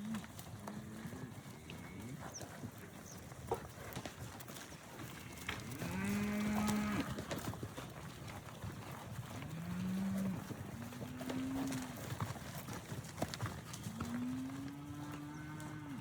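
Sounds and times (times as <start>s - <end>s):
hooves clattering: 0.0s - 16.0s
cows mooing: 5.1s - 7.4s, 9.4s - 12.0s, 13.8s - 16.0s.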